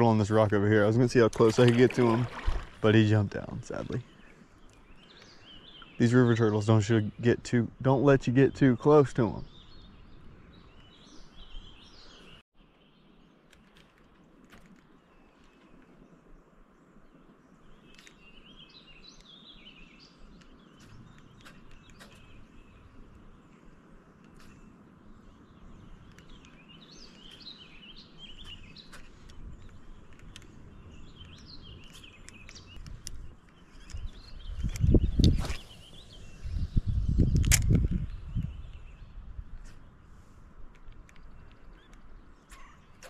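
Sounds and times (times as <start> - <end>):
songbirds chirping and singing: 0.0 - 13.4, 14.8 - 43.0
faint outdoor hiss: 0.0 - 43.0
sharp clicks: 28.4 - 30.6, 31.2 - 35.4, 37.3 - 38.8, 40.7 - 43.0.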